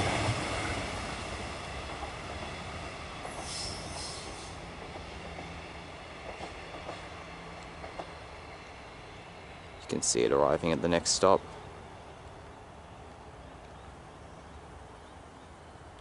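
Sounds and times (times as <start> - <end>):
faint clicks: 13.1 - 13.8.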